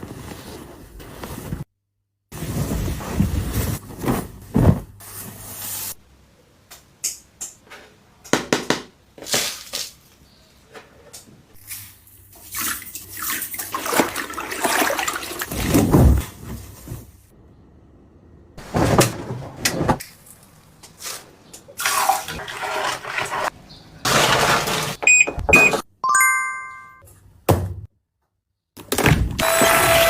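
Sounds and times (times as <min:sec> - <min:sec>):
water splashing and running: 0:12.4 - 0:15.7, 0:21.8 - 0:23.6.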